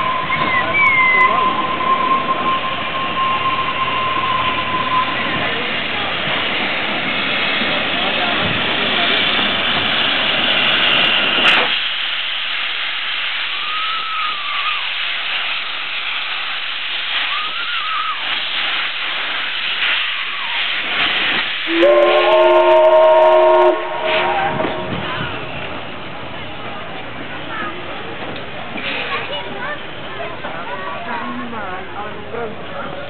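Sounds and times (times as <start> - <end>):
locomotive steam hissing: 0.0 - 33.0
steam whistle blast: 21.7 - 25.0.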